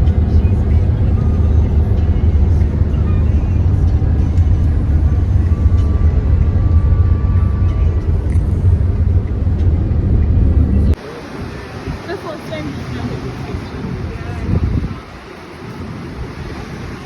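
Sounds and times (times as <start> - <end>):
loud low rumble: 0.0 - 11.0.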